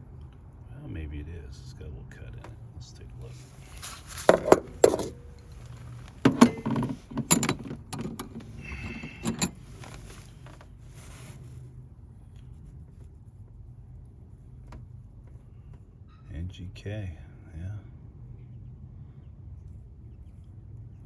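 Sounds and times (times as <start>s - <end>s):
metallic clicks and rattles: 4.2s - 10.2s
metal ringing clink: 4.3s - 9.7s.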